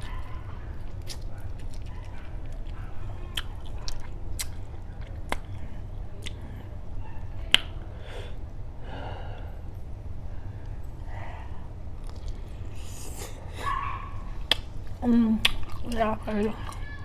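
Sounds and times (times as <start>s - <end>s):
chewing food: 0.0s - 7.9s, 10.5s - 17.0s
steady low hum: 0.0s - 17.0s
wet mouth clicks and smacks: 0.9s - 2.7s, 3.3s - 5.6s, 7.5s - 7.8s, 12.0s - 12.4s, 14.4s - 16.0s.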